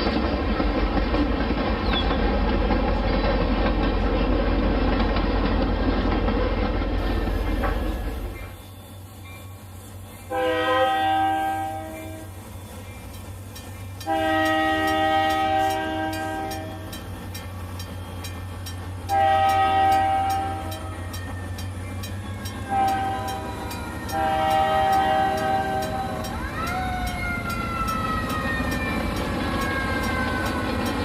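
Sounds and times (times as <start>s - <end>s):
model locomotive horn: 10.3s - 12.4s, 14.0s - 17.0s, 19.1s - 21.0s, 22.6s - 26.3s.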